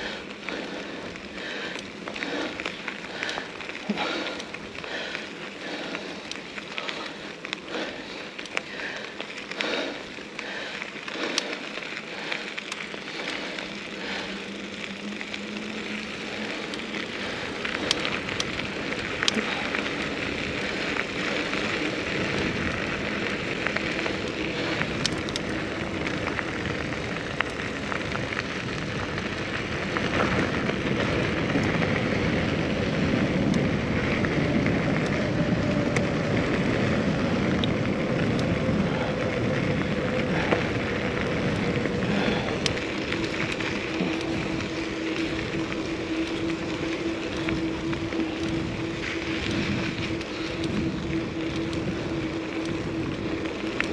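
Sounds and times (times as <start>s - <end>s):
bike clicks and rattles: 0.0s - 53.9s
bike tyres rolling: 0.0s - 53.9s
wind rushing over microphone: 13.2s - 53.9s.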